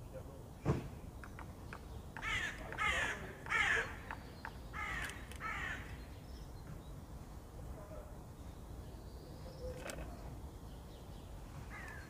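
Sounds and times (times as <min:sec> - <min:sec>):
bird cawing: 0:02.2 - 0:06.0, 0:11.7 - 0:12.0.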